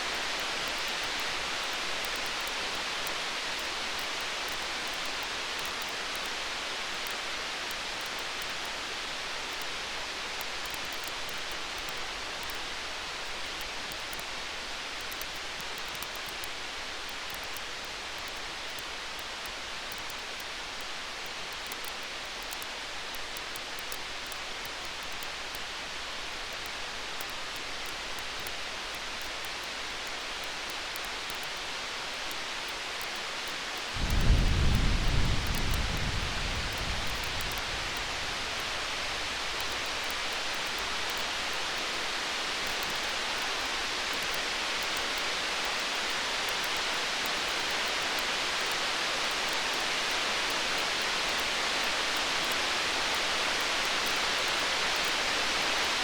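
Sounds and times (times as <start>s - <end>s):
campfire crackling: 33.0s - 44.9s
distant thunder rumble: 34.0s - 39.5s.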